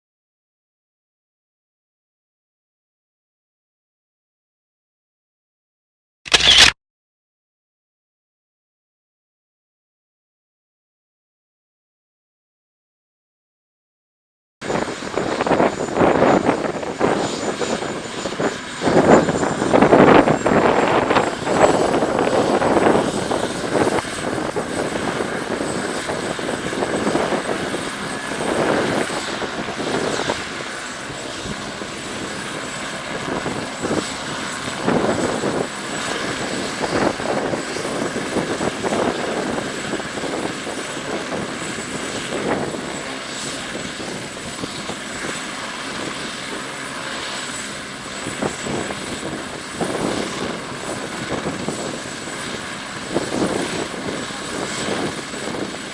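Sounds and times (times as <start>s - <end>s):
helicopter rotor rush: 6.3s - 6.8s, 14.6s - 55.9s
helicopter turbine whine: 14.6s - 55.9s.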